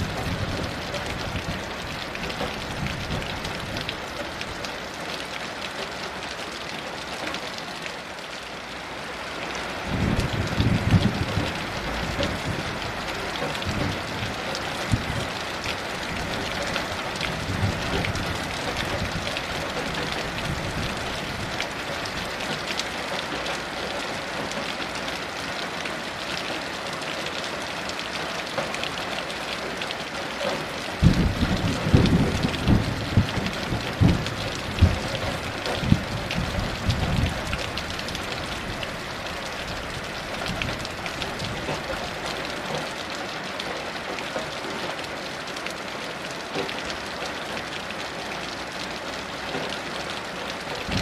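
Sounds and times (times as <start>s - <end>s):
heavy rain falling: 0.0s - 51.0s
distant thunder rumble: 31.0s - 37.8s.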